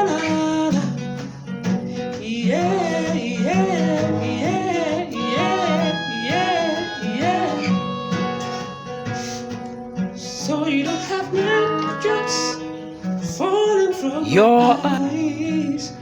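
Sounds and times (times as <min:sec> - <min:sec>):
guitar accompaniment: 0:00.0 - 0:16.0
person singing wordless phrase: 0:13.8 - 0:15.4.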